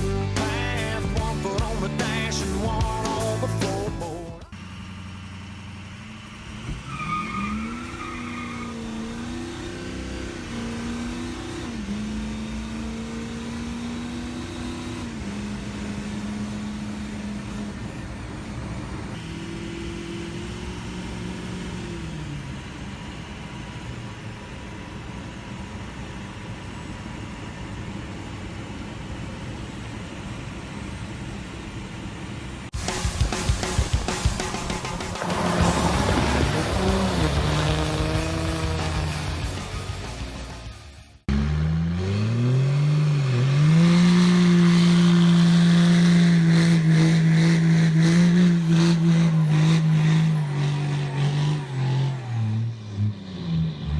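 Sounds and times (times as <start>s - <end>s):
pickup truck engine revving: 4.5s - 23.0s, 33.5s - 53.9s.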